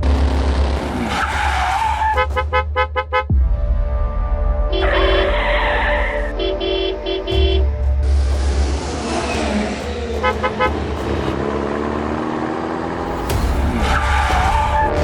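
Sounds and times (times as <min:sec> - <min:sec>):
vehicle engine rumbling: 0:00.0 - 0:15.0
short horn toots: 0:06.3 - 0:07.7.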